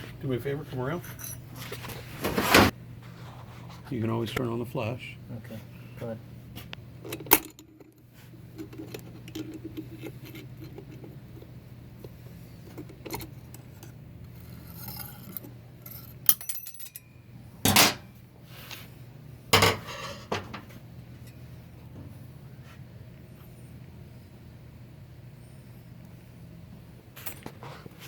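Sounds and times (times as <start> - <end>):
metal parts clinking and clanking: 12.7 - 18.1.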